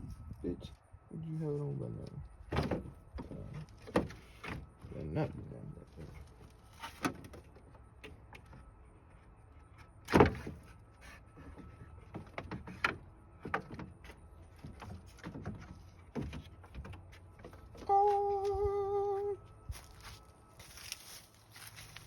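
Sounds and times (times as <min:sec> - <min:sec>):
car parts knocking and clicking: 0:02.5 - 0:05.0, 0:11.4 - 0:17.9
person saying oh: 0:17.8 - 0:19.4.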